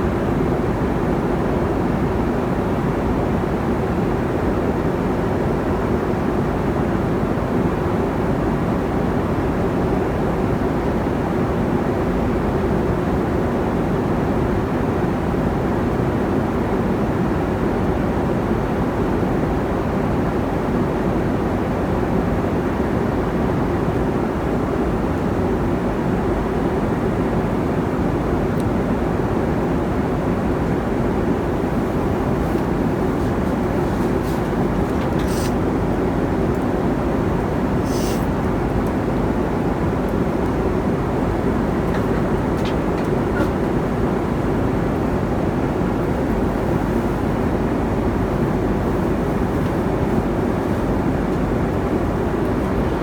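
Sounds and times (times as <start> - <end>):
airliner cabin engine rush: 28.8 - 53.0.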